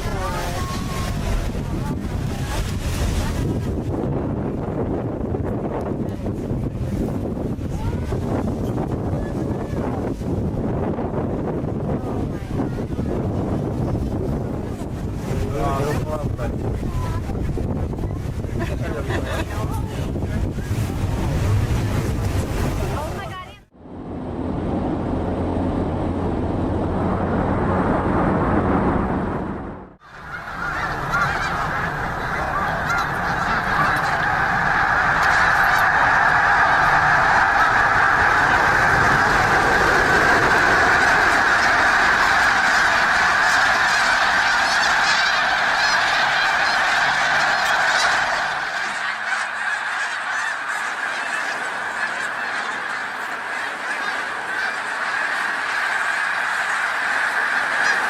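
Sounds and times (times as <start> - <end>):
geese honking: 0.0 - 4.0, 30.0 - 58.0
low rushing noise: 23.7 - 52.4.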